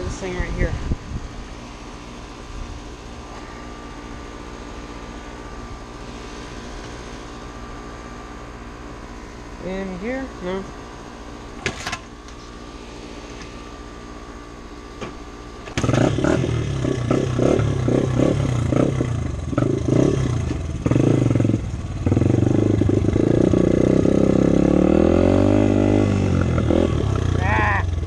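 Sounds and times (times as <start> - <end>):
dirt bike engine revving: 15.6 - 28.0.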